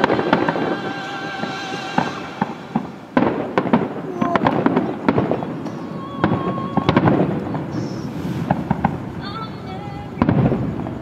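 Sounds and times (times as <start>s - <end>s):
fireworks bursting and crackling: 0.0s - 11.0s
wind noise on microphone: 0.0s - 11.0s.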